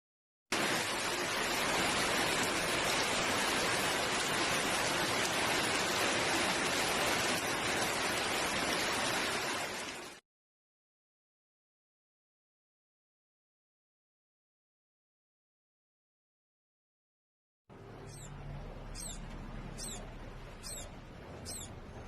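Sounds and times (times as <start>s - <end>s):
heavy rain falling: 0.5s - 10.2s, 18.1s - 22.0s.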